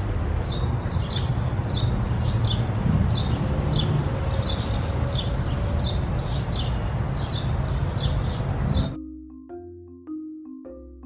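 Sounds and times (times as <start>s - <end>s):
marimba music: 8.8s - 11.0s.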